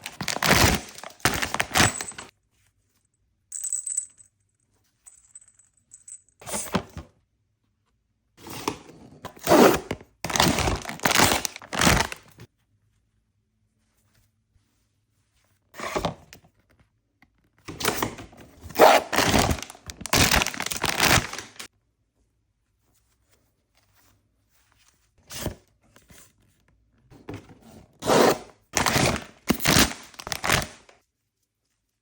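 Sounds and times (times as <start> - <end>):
packaging tearing and crinkling: 0.0 - 2.2, 9.4 - 12.4, 18.7 - 21.7, 28.8 - 30.9.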